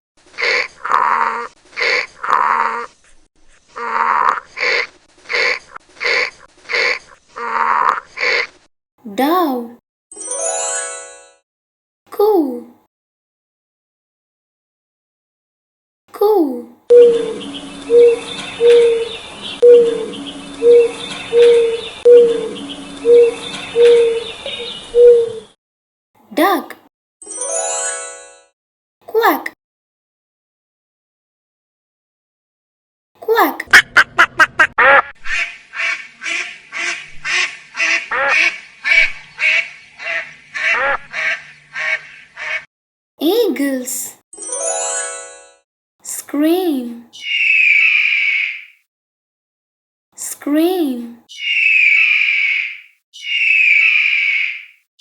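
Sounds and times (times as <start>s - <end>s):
duck quacking: 0.4s - 2.9s, 3.8s - 8.6s, 33.7s - 42.7s
dove cooing: 16.9s - 25.5s
small birds chirping faintly: 16.9s - 25.6s, 51.3s - 54.8s.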